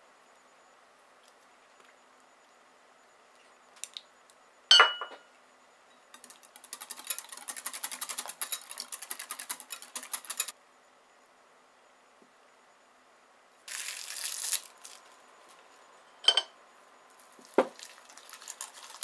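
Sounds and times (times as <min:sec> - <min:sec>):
whisk beating in bowl: 0:06.2 - 0:10.5.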